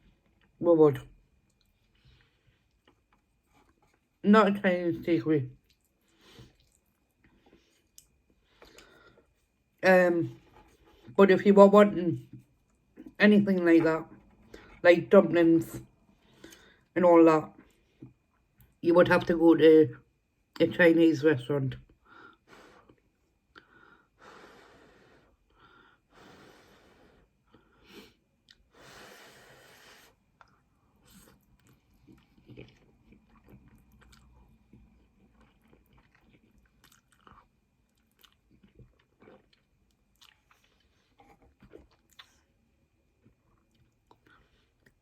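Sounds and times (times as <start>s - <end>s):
chewing noodles: 5.5s - 9.5s, 30.2s - 45.0s.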